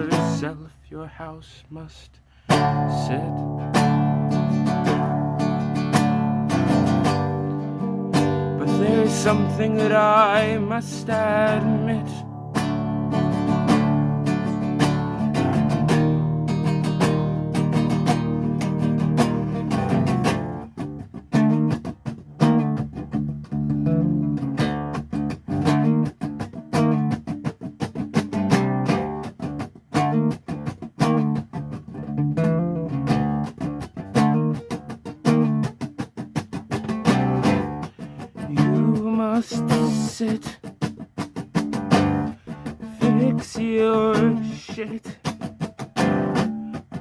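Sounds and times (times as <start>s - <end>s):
guitar playing: 0.0s - 0.8s, 1.8s - 47.0s.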